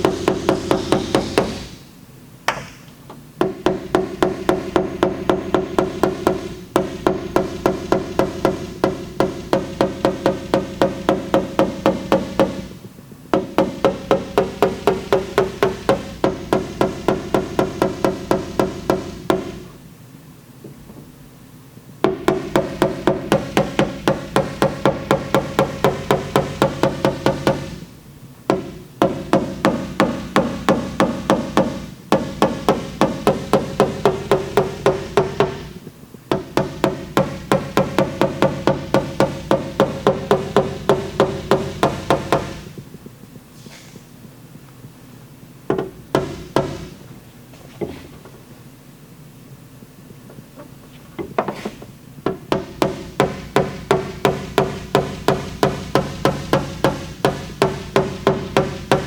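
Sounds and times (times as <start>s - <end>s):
hammer tapping sheet metal: 0.0s - 1.8s, 2.5s - 19.7s, 22.0s - 27.8s, 28.5s - 42.8s, 45.7s - 47.0s, 52.3s - 59.0s.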